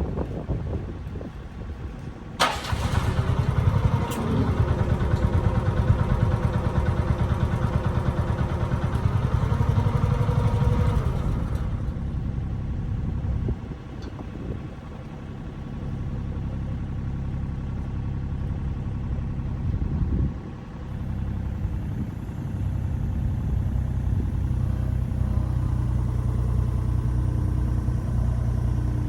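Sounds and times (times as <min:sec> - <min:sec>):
excavator diesel engine revving: 0:02.4 - 0:12.8, 0:20.8 - 0:29.0.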